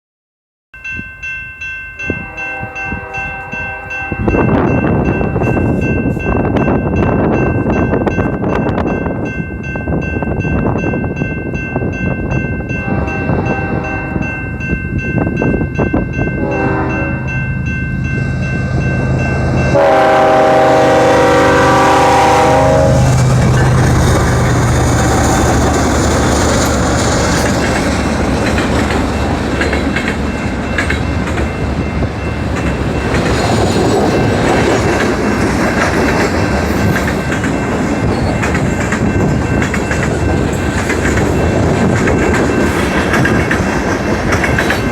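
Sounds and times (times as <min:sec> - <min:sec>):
locomotive air horn blasts: 0:02.2 - 0:04.4, 0:12.8 - 0:14.4, 0:16.4 - 0:17.4, 0:19.7 - 0:23.2
freight cars rolling clickety-clack: 0:23.0 - 0:44.9.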